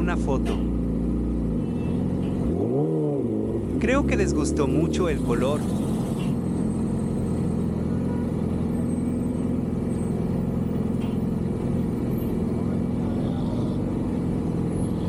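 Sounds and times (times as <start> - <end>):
motorcycle engine running at low revs: 0.0 - 15.0.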